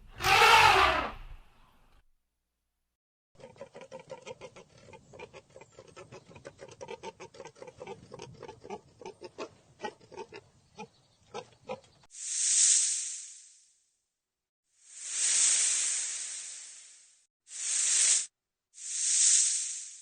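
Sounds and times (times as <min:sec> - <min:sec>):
farm animal grunting: 0:03.4 - 0:12.0.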